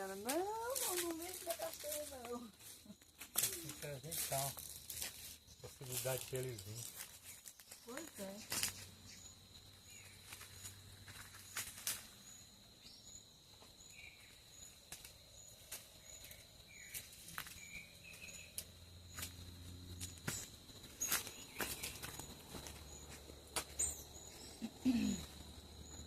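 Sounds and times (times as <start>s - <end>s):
insects whining and chirping: 0.0s - 26.0s
small birds chirping: 0.0s - 26.0s
footsteps: 20.0s - 26.0s.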